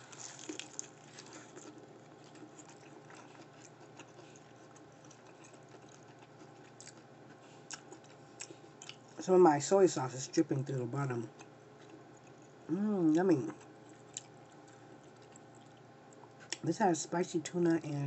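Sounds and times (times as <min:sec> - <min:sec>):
person chewing crunchy food: 0:00.0 - 0:09.2, 0:11.3 - 0:12.6, 0:13.2 - 0:16.6.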